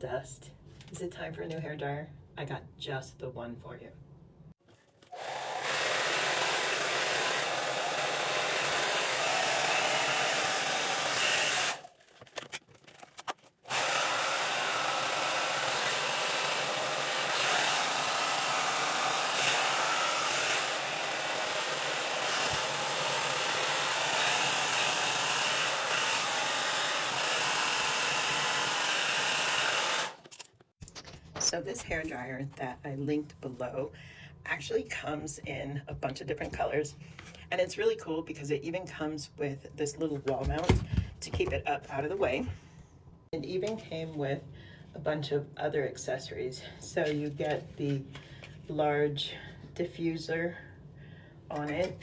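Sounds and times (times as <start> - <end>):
hair dryer blowing: 5.1 - 11.9, 13.7 - 30.2.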